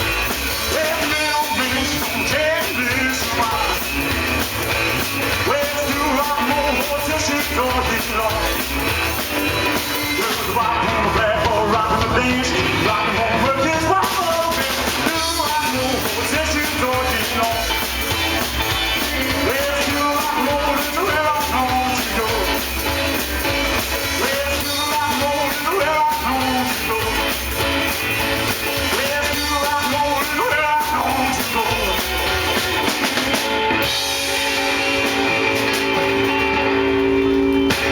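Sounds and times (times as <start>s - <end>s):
bass: 0.0s - 37.9s
drum kit: 0.0s - 37.9s
guitar: 0.0s - 37.9s
person singing: 0.6s - 4.0s, 5.2s - 8.7s, 9.8s - 22.7s, 24.0s - 27.6s, 28.8s - 32.4s.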